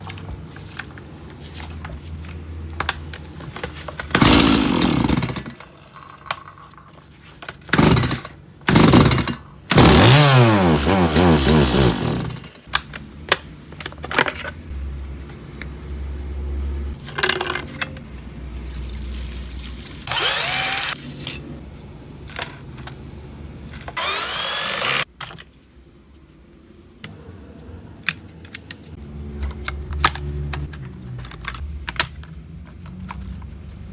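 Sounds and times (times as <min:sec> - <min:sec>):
chainsaw engine revving: 0:04.1 - 0:05.6, 0:07.8 - 0:12.5, 0:20.0 - 0:21.0, 0:24.0 - 0:25.0.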